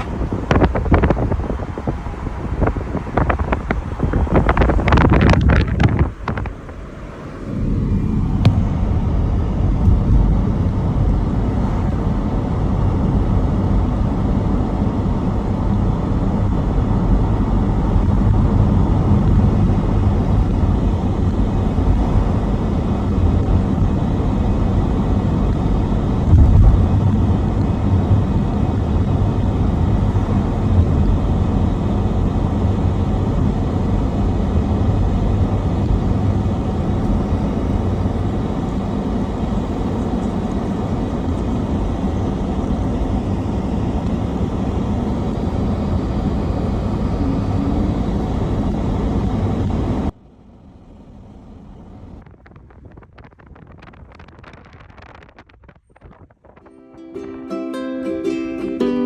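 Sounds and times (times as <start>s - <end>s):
car driving rumble: 0.0s - 56.7s
loud thump: 26.2s - 28.3s.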